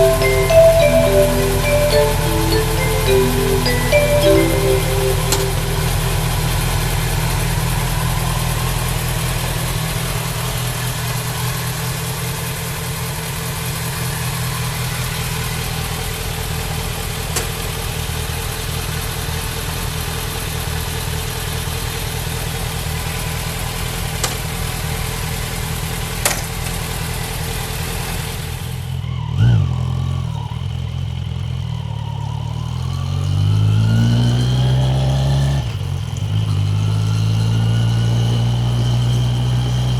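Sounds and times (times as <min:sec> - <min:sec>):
motorcycle engine revving: 0:29.1 - 0:39.9.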